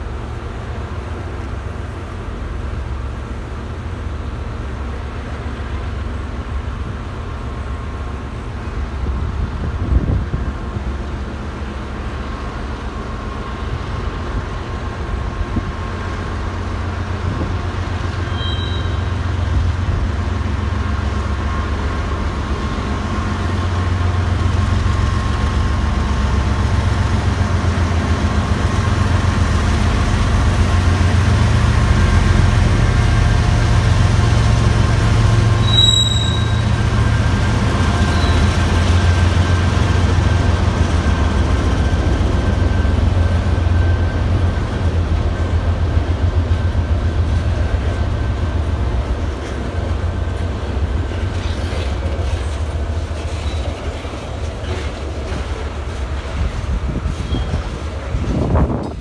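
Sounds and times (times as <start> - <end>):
diesel locomotive rumble: 0.0 - 59.0
freight cars rolling: 9.2 - 59.0
high squeaks: 35.6 - 36.8.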